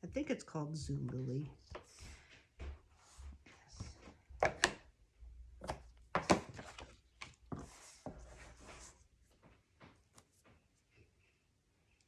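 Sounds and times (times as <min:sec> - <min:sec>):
paper rustling: 0:05.6 - 0:10.8.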